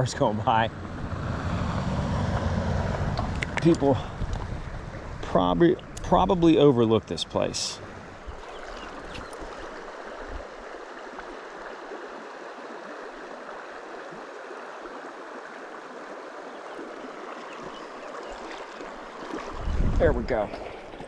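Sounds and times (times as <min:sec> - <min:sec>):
stream rippling: 0:00.0 - 0:21.0.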